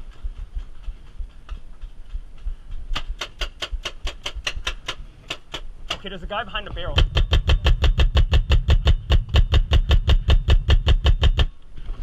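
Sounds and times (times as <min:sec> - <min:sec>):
paintball markers firing: 0:02.9 - 0:11.6.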